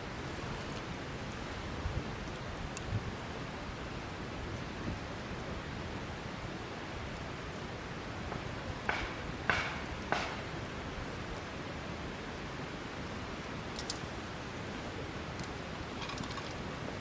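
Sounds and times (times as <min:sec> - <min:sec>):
campfire hissing: 0:00.0 - 0:17.0
fire crackling pops: 0:02.2 - 0:03.0, 0:07.8 - 0:17.0.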